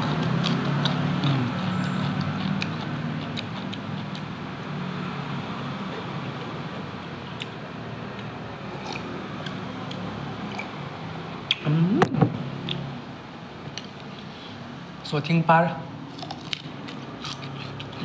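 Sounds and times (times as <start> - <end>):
person chewing food: 0.0 - 4.4, 7.4 - 10.8, 16.1 - 18.0.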